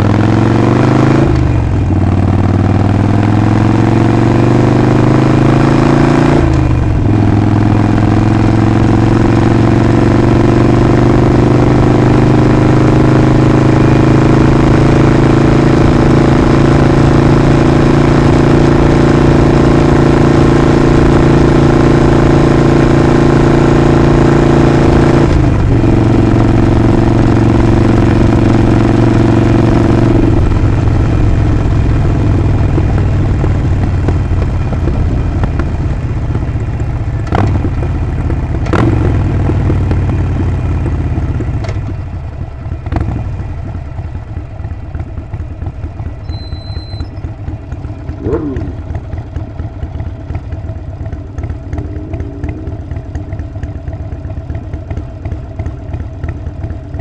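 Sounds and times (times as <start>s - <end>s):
motorcycle engine running: 0.0s - 57.0s
high beep: 46.2s - 47.2s.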